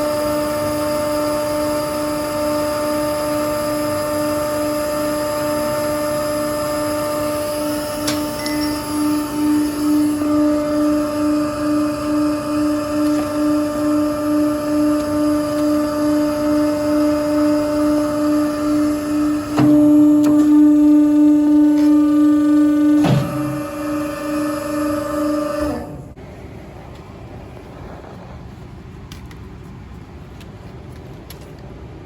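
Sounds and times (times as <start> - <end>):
electric motor humming: 0.0 - 26.2.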